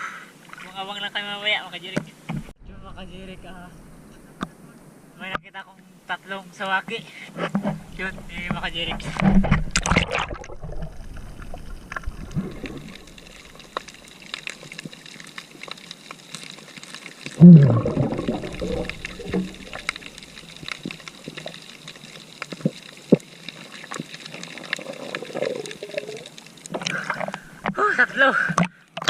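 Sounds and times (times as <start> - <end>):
sea water sloshing: 7.5 - 27.8.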